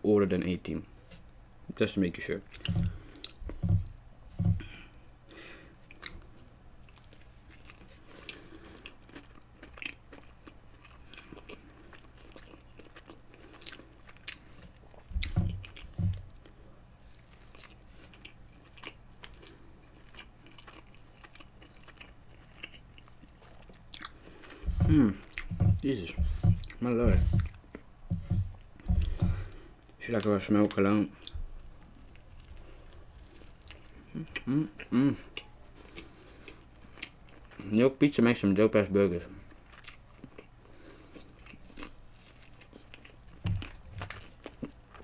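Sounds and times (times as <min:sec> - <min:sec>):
close chewing of food: 0:02.5 - 0:37.8, 0:39.4 - 0:45.0
dull low thumps: 0:02.6 - 0:04.8, 0:15.1 - 0:16.3, 0:24.6 - 0:29.6.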